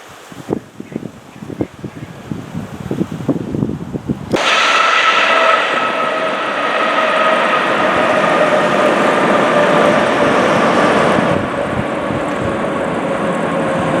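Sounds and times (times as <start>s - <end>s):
jet engines winding down: 4.3s - 14.0s.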